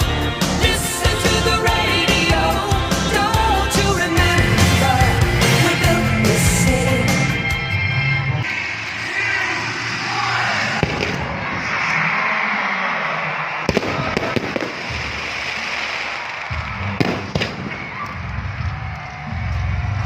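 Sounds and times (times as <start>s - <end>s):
music playing: 0.0s - 9.2s
fireworks crackling: 10.6s - 12.2s, 13.4s - 18.2s
fireworks bangs: 10.6s - 12.3s, 13.4s - 18.2s.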